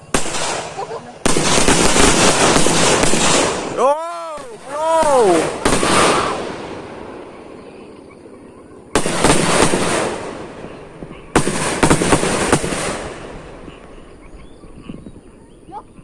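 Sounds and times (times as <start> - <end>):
firecrackers cracking and banging: 0.0 - 7.8, 8.9 - 13.9.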